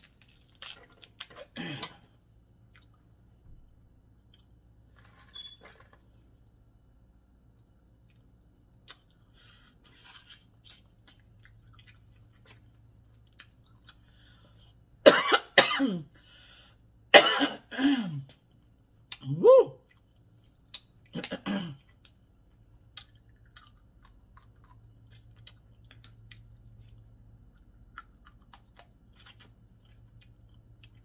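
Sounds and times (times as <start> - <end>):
woman coughing hard: 15.1 - 16.1, 17.1 - 18.2, 21.2 - 21.8
faint mouth and eating sounds: 19.0 - 31.0.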